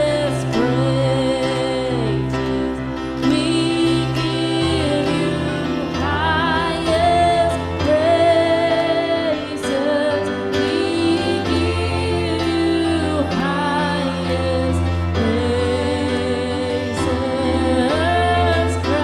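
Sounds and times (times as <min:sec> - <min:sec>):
sustained instrumental accompaniment: 0:00.0 - 0:19.0
woman singing with vibrato: 0:00.0 - 0:19.0.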